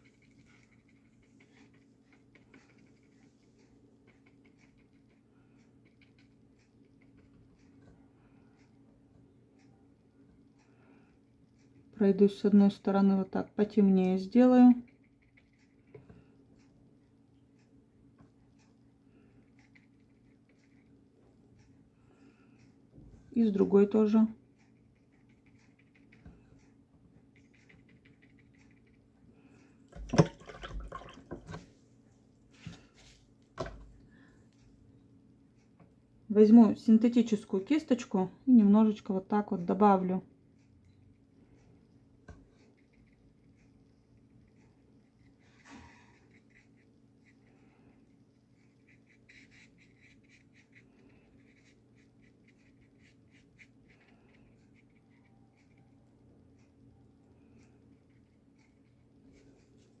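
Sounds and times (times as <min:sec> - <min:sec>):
paintbrush strokes on paper: 0:00.0 - 0:07.6, 0:32.5 - 0:33.3, 0:41.1 - 0:56.8.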